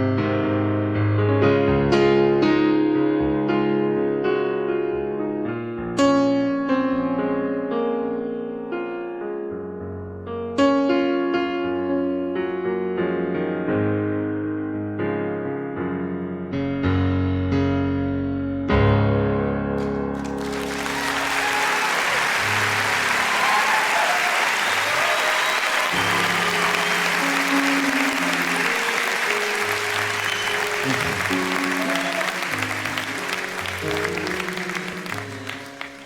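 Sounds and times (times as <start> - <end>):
audience applause: 19.8 - 36.0.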